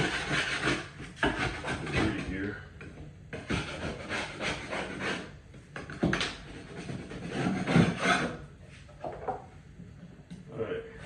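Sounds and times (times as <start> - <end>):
blade scraping drywall: 0.0 - 2.5, 3.4 - 5.3, 6.3 - 8.4.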